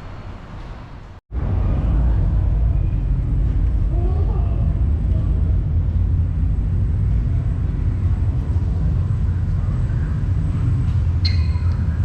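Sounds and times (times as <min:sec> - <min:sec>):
steady low rumble: 0:00.0 - 0:12.0
short high squeak: 0:11.2 - 0:11.7.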